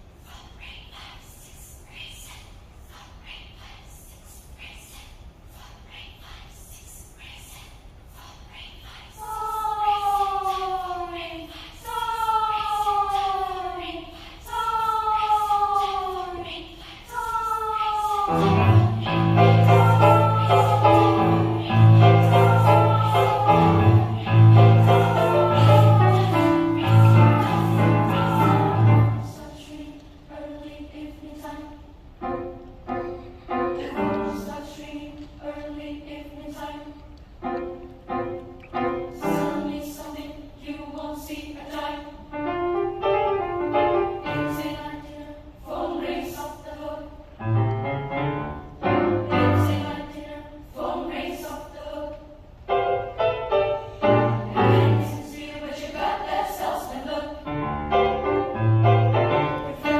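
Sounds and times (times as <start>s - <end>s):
children's choir singing: 5.6s - 59.9s.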